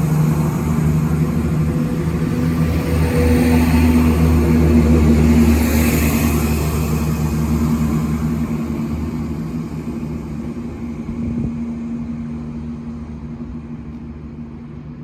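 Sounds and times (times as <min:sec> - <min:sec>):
diesel train engine running: 0:00.0 - 0:15.0.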